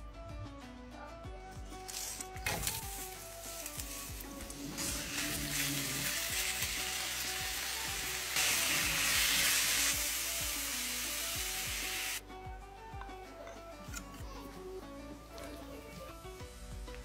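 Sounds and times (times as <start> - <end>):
chicken and onions sizzling in pan: 2.4 - 12.2.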